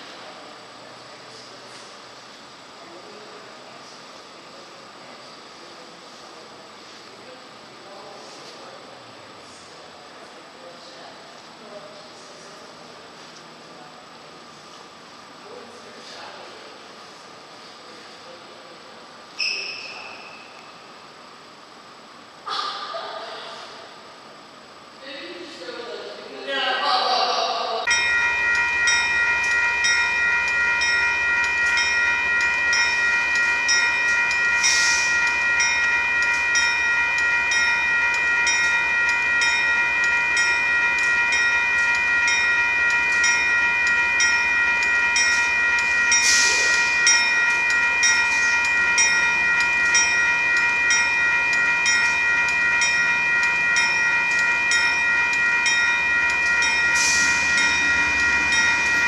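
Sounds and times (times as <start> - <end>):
freight train rolling past: 27.9 - 59.0
repeating ringing tone: 27.9 - 59.0.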